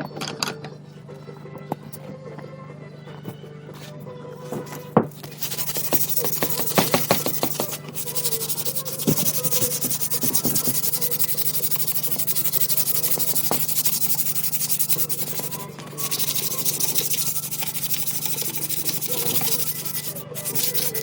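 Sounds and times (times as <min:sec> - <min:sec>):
sanding steel blade: 0:05.2 - 0:21.0.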